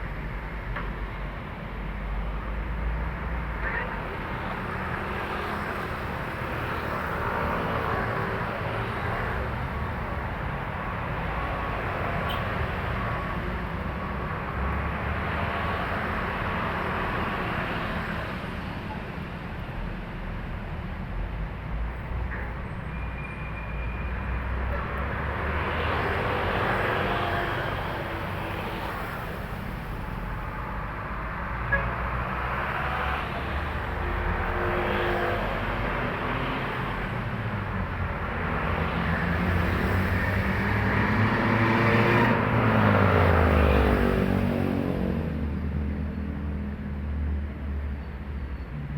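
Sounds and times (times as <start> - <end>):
trucks passing on highway: 0.0 - 48.9.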